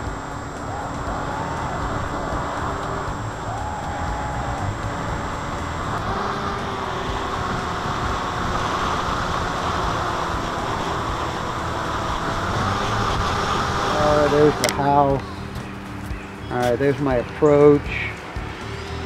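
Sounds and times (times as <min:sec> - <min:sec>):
wind rushing: 0:00.0 - 0:16.0
electric motor and propeller whine: 0:00.0 - 0:19.0.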